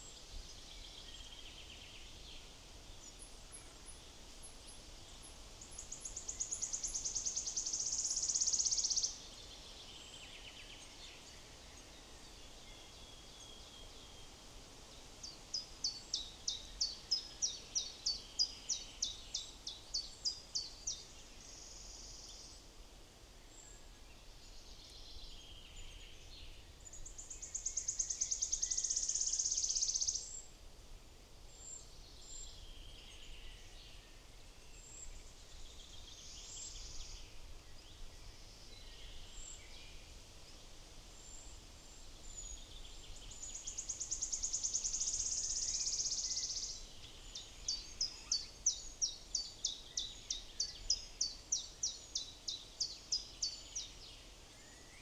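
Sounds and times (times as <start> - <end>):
songbirds singing: 42.2 - 55.0.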